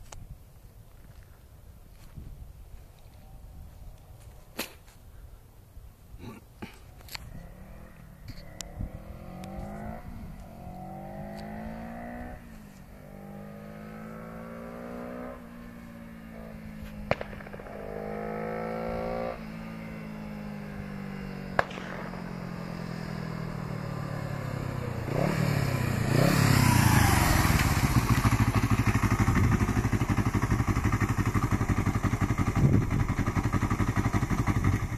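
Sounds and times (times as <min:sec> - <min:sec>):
motorcycle accelerating: 0:07.1 - 0:34.9.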